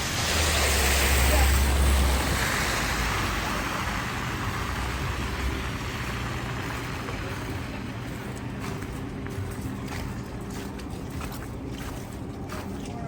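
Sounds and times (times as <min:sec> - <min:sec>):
vehicle hiss passing: 0:00.0 - 0:07.8
low steady hum: 0:01.1 - 0:13.0.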